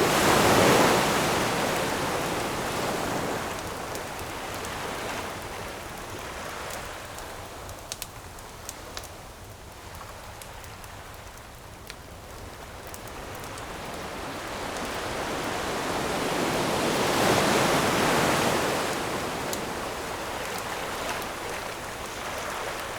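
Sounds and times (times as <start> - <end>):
ocean wave breaking: 0.0 - 4.1, 14.0 - 21.7
campfire wood crackling: 0.0 - 17.6, 18.2 - 22.9.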